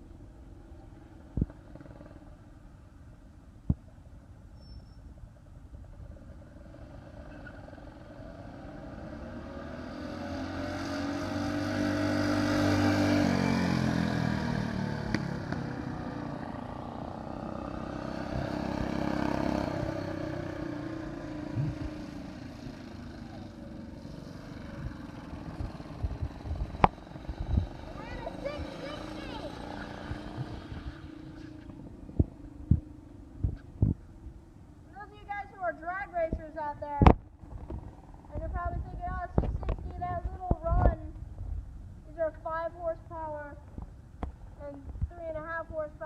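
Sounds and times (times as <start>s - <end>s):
small engines running hard: 6.4s - 31.7s.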